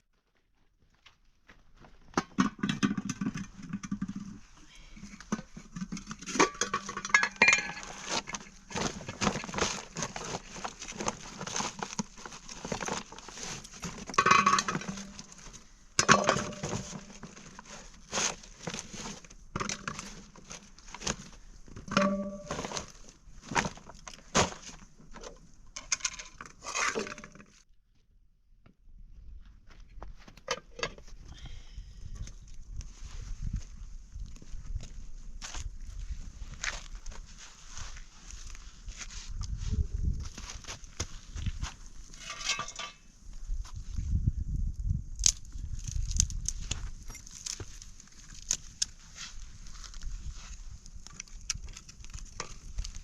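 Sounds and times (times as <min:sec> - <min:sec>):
hard objects clinking and clattering: 0:05.8 - 0:10.1, 0:42.2 - 0:43.0.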